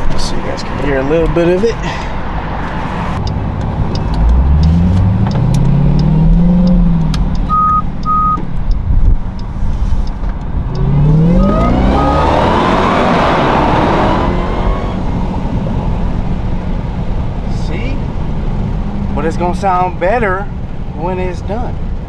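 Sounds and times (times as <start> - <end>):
car engine accelerating: 0.0 - 22.0
supercharger whine: 3.0 - 20.9
short electronic beeps: 5.3 - 8.4.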